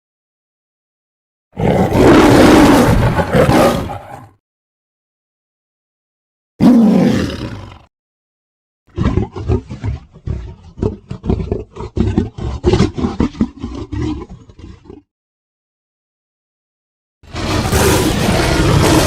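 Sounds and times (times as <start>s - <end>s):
tiger growling pulses: 1.6s - 4.4s, 6.6s - 7.9s, 8.9s - 15.1s, 17.3s - 19.0s
tiger roar: 1.6s - 4.4s, 6.6s - 7.9s, 8.9s - 15.1s, 17.3s - 19.0s.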